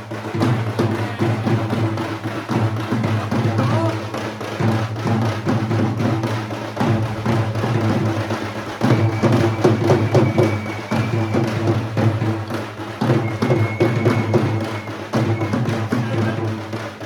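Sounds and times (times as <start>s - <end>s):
rapid drum and percussion hits: 0.0s - 17.0s
high held tone: 7.9s - 12.4s, 13.0s - 16.4s.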